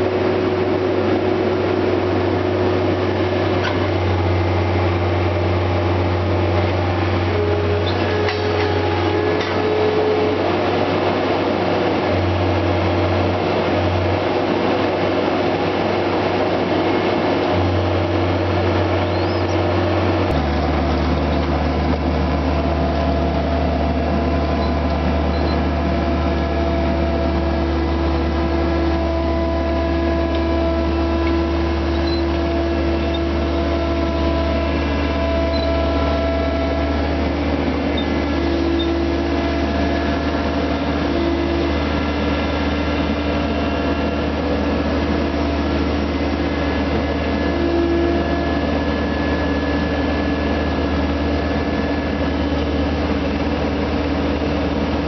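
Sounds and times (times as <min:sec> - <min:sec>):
loader engine running: 0:00.0 - 0:55.0
whining tones: 0:18.4 - 0:54.9.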